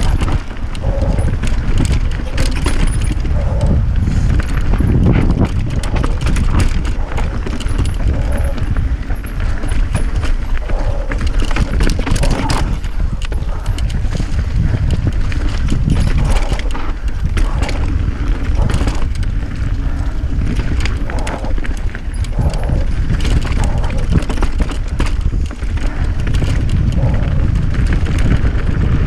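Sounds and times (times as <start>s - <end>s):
low rumble: 0.0s - 29.0s
rattle of clicks and knocks: 0.0s - 29.0s.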